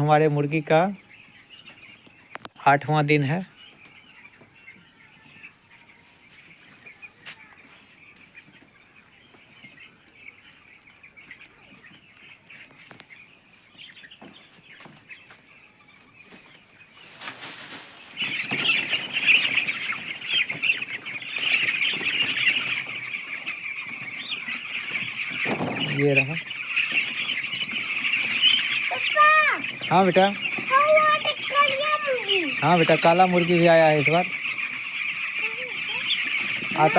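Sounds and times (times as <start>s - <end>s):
chicks peeping: 0.0s - 36.9s
rustling: 16.3s - 33.0s.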